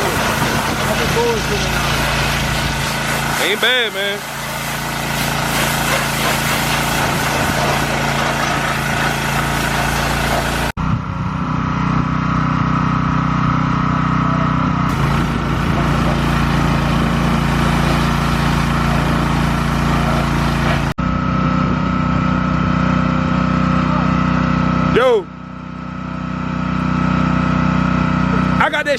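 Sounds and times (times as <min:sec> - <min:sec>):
hiss of water spray: 0:00.0 - 0:10.7
small engine running steadily: 0:00.0 - 0:28.9.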